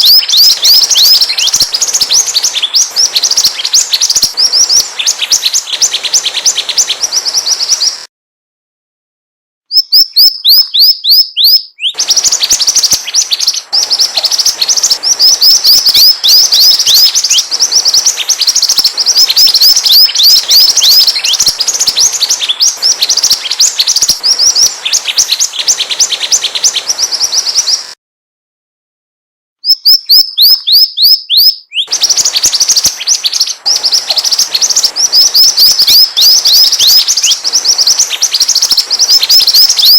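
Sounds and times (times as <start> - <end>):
songbird chirping high notes: 0.0 - 8.1, 9.7 - 28.0, 29.6 - 39.9.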